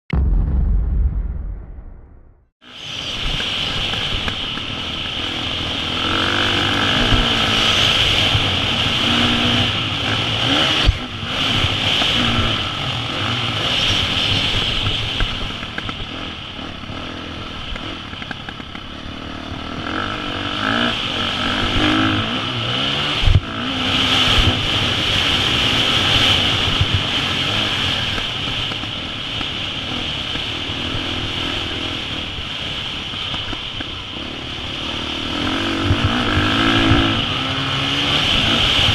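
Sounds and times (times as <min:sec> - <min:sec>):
sharp thud: 0:00.1 - 0:02.5
motorcycle engine revving: 0:02.8 - 0:38.9.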